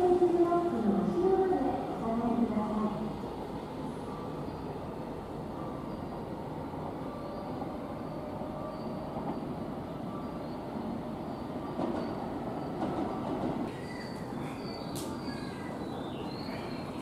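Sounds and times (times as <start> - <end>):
train wheels rumbling on rails: 0.0 - 17.0
faint high squeals: 7.0 - 10.5, 13.7 - 17.0.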